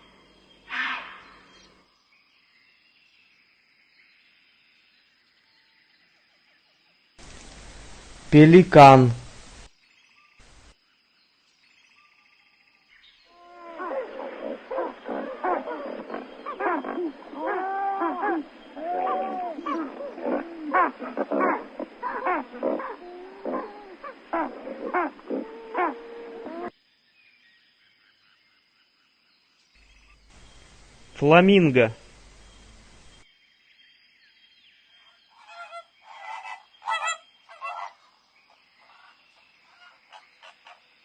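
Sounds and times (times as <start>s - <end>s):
pelicans grunting calls: 13.7s - 26.7s.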